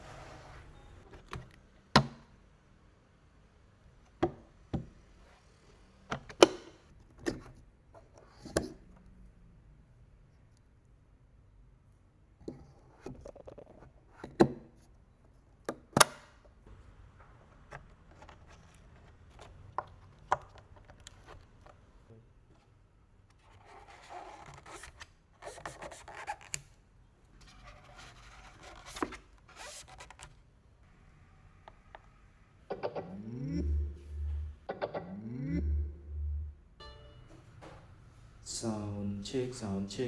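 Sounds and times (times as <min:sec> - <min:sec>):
packaging rustling and scraping: 0:27.5 - 0:30.4.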